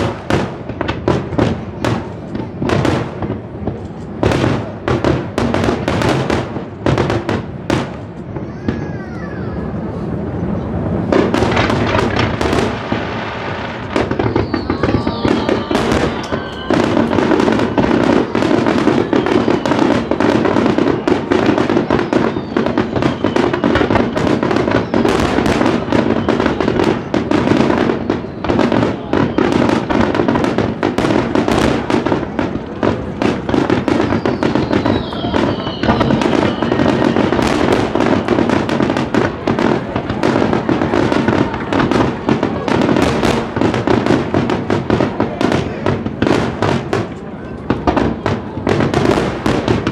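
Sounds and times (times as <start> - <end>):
fireworks crackling: 0.0 - 49.9
firework shells bursting: 11.1 - 47.2
whistling firework shells: 13.6 - 32.2, 33.0 - 44.3.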